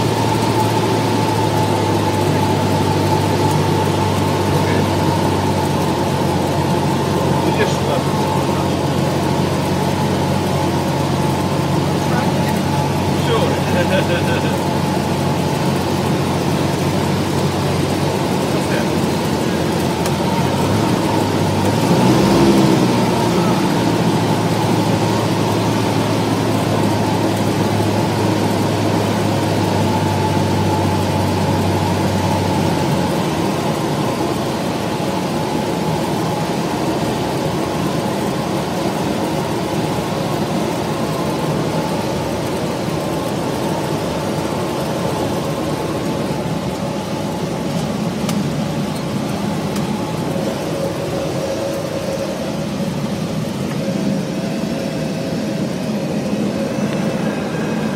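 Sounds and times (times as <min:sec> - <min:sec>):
light aircraft engine droning: 0:00.0 - 0:57.9.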